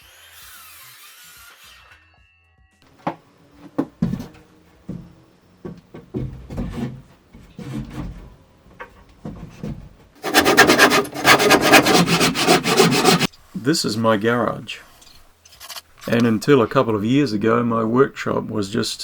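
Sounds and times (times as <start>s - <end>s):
wooden knocks and clunks: 4.9s - 11.0s
fast rasping scrape on wood: 10.2s - 13.3s.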